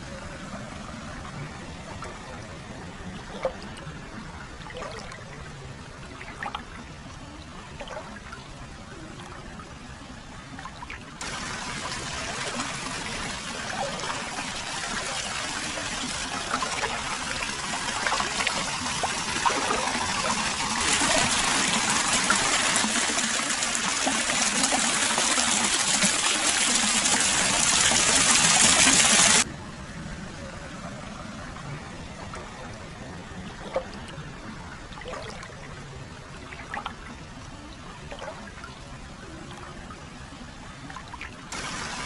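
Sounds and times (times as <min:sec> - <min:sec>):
water trickling into a bath: 0:10.7 - 0:29.5.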